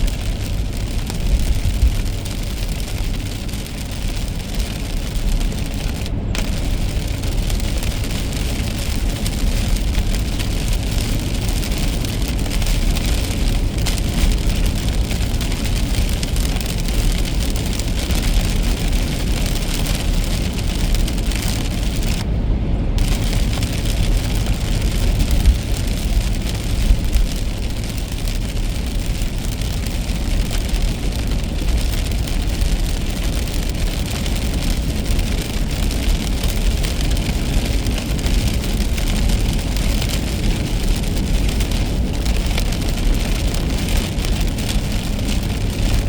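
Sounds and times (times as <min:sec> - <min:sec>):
rain hiss on car: 0:00.0 - 0:46.0
road rumble from tyres and engine: 0:00.0 - 0:46.0.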